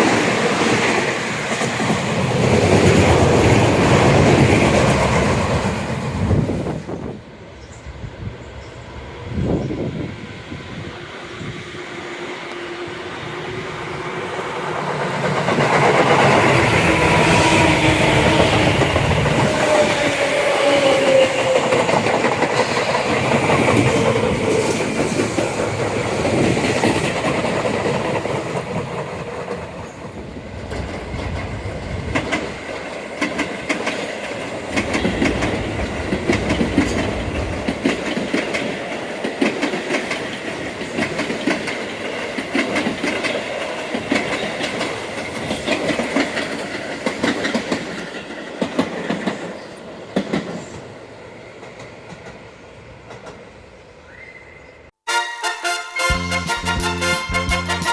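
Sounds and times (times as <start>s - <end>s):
train wheels clattering over rail joints: 14.7s - 50.8s.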